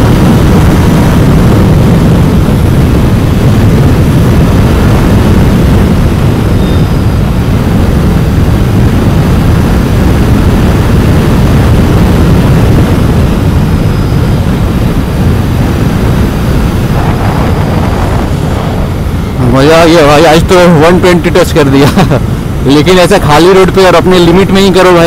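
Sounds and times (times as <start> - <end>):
motorcycle engine at high speed: 0.0 - 25.0.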